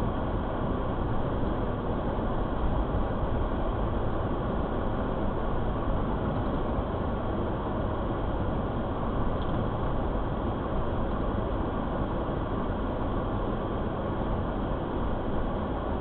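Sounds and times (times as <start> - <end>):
moving vehicle rumble: 0.0 - 16.0.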